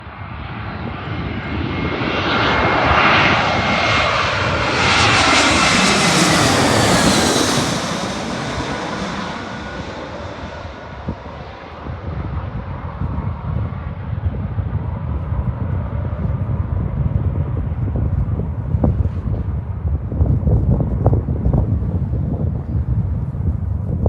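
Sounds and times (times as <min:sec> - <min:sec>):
airplane passing overhead: 0:00.0 - 0:24.0.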